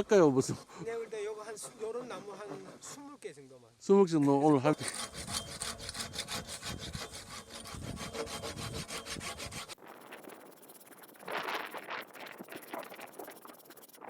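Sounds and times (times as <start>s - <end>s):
hand saw cutting a log: 0.0s - 3.1s, 4.7s - 9.8s.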